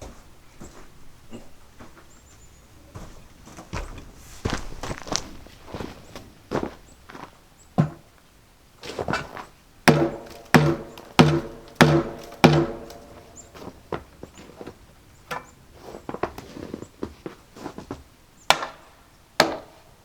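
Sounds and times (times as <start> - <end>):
ringing hammer blows: 9.9 - 13.5.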